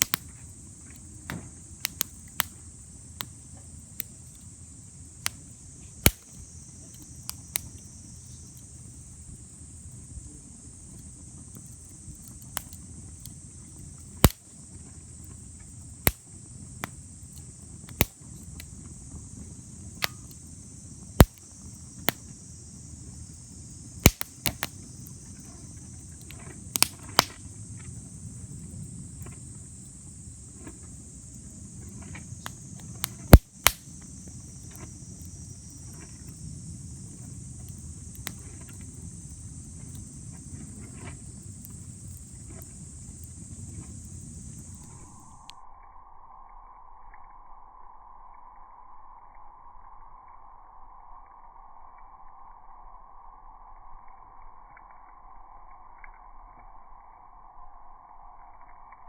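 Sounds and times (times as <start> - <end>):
fire pops: 0.0 - 9.5, 10.8 - 45.6
wood bonfire crackling: 0.0 - 45.5
crickets chirring: 0.0 - 59.0.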